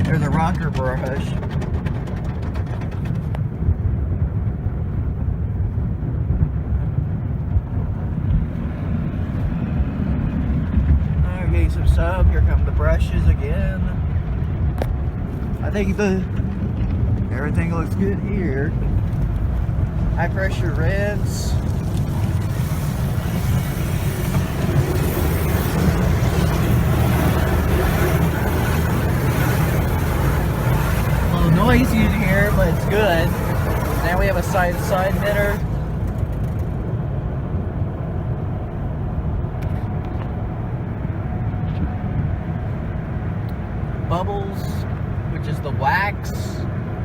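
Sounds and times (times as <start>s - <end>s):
car wash machinery rumbling: 0.0s - 47.0s
brushes and water on car body: 19.8s - 36.6s.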